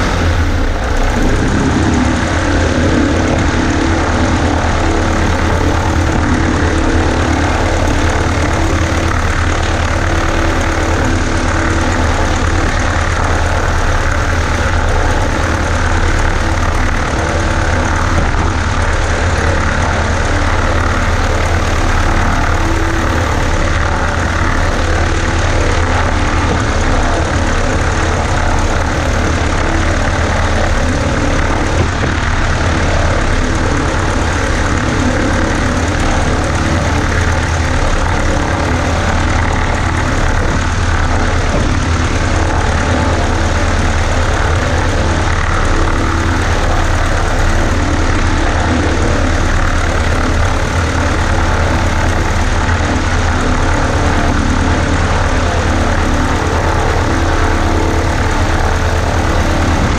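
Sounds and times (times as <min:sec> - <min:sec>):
propeller plane engine running: 0:00.0 - 0:59.9.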